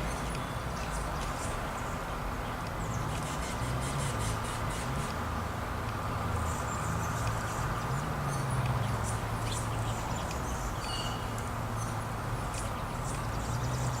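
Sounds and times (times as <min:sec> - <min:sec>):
songbirds chirping: 0:00.0 - 0:14.0
clear whistled bird notes: 0:09.5 - 0:12.0.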